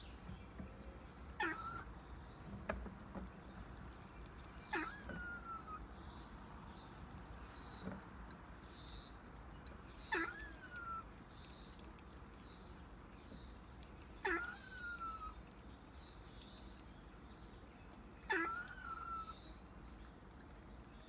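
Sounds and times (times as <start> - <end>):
pet animal squeaking and whining: 1.4 - 1.9, 4.5 - 15.7, 18.3 - 19.4.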